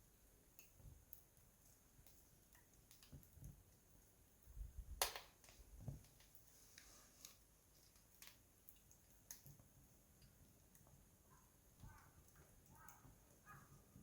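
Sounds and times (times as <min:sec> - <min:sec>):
wood fire crackling: 0:00.0 - 0:14.0
sharp fire pops: 0:04.9 - 0:05.7.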